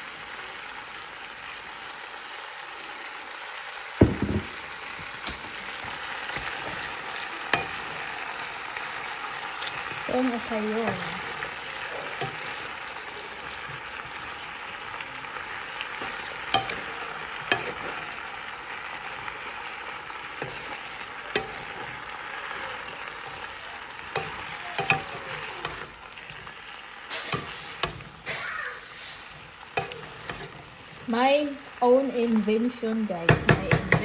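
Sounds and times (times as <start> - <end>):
vegetables sizzling in oil: 0.0 - 34.0
utensil clicking against pan: 9.4 - 10.1, 10.9 - 18.2, 19.0 - 28.4, 29.4 - 31.0, 33.3 - 34.0.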